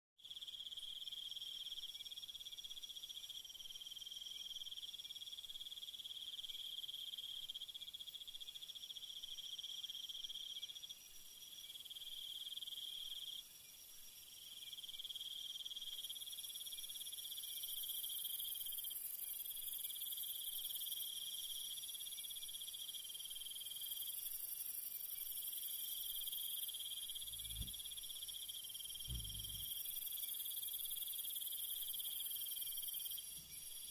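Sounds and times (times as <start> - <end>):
insects trilling: 14.5 - 33.9
low thuds: 27.3 - 27.8, 29.1 - 29.7.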